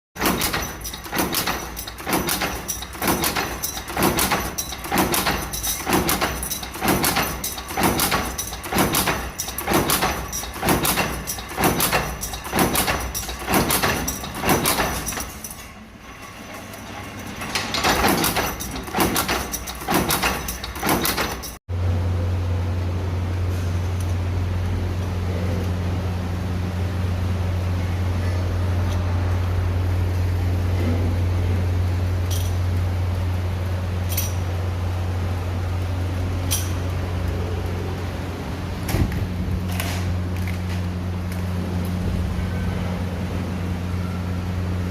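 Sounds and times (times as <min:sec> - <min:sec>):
power press clanking strokes: 0:00.2 - 0:21.6.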